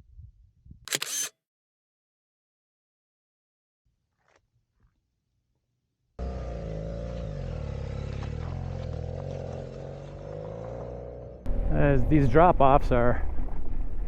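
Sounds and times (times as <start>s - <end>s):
motorcycle engine running: 6.2s - 12.6s.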